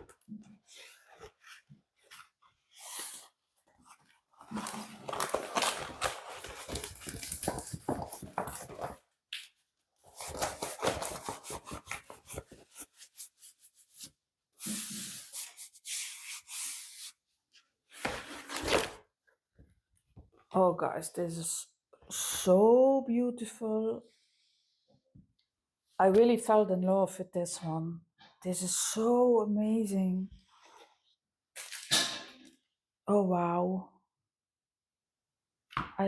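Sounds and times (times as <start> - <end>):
plastic wrapping crinkling: 3.8 - 9.0.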